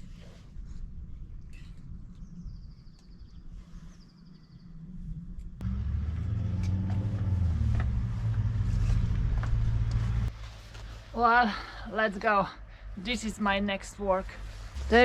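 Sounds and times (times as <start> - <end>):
faint rumble: 4.8 - 11.1, 14.3 - 15.0
vehicle engine humming: 5.6 - 10.4, 14.8 - 15.0.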